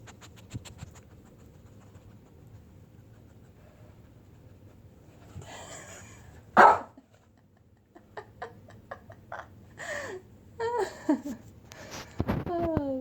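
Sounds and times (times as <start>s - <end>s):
dog yipping: 6.6s - 6.9s
dog barking: 6.6s - 7.0s.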